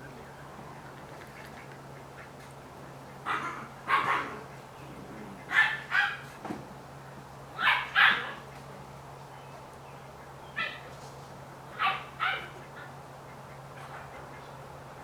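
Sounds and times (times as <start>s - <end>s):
puppy yapping barks: 5.5s - 6.2s, 7.6s - 8.4s.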